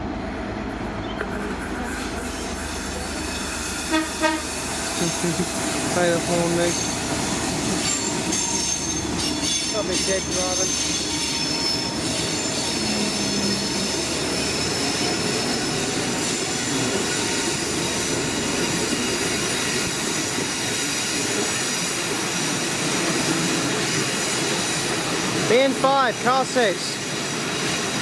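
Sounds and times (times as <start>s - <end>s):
train carriages rumbling on rails: 0.0s - 28.0s
wheel squeal: 6.6s - 7.1s, 7.8s - 22.7s.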